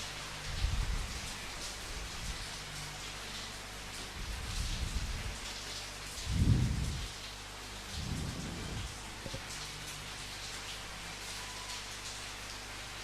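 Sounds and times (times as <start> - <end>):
steady rain falling: 0.0 - 13.0
thunder rumbles: 6.3 - 7.1, 7.9 - 9.4.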